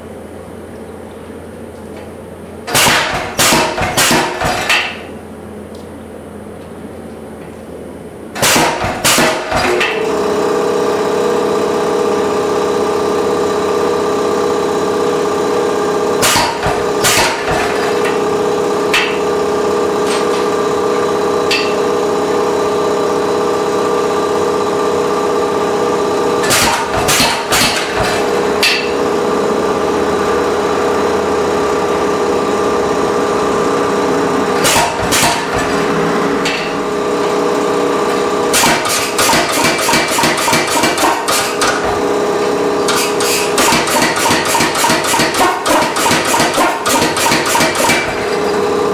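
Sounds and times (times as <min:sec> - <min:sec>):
machine hum: 0:00.0 - 0:48.9
power hammer heavy blows: 0:02.7 - 0:05.0, 0:08.4 - 0:10.0, 0:16.2 - 0:18.2, 0:26.4 - 0:28.9, 0:34.5 - 0:37.0, 0:38.5 - 0:42.2, 0:42.8 - 0:48.6.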